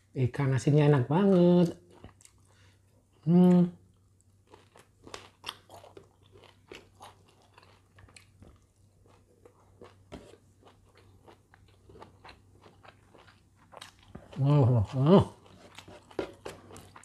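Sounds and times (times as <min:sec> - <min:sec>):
person chewing food: 0:01.6 - 0:03.2, 0:03.9 - 0:17.0.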